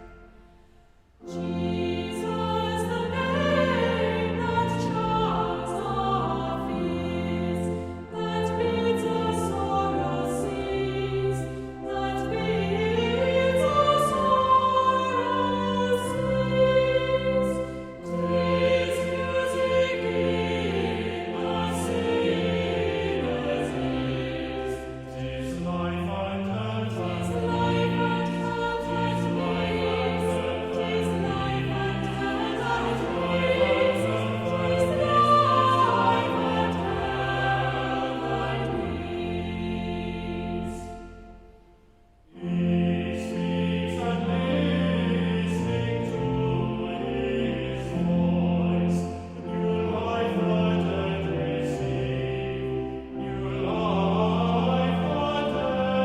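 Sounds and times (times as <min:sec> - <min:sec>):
choir singing: 0:00.0 - 0:56.0.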